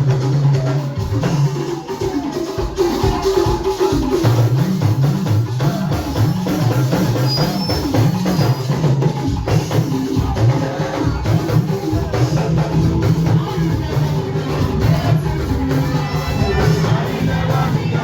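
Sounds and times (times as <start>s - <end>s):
drums and hand percussion: 0.0s - 18.0s
bass line: 11.1s - 18.0s.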